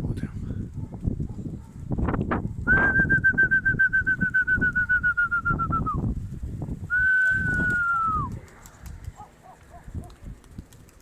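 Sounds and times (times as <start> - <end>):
wind buffeting microphone: 0.0 - 11.0
trilled high whistle: 2.7 - 6.0, 6.9 - 8.2.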